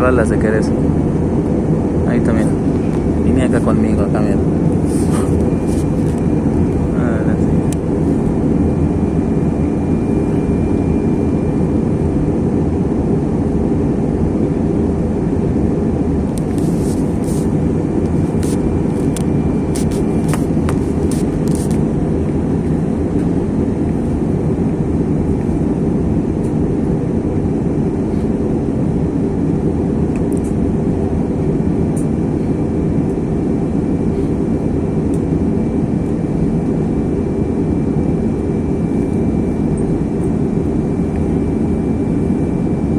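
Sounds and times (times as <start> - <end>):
airliner cabin engine noise: 0.0 - 42.9
faint thin whine: 2.1 - 12.1, 16.3 - 24.0.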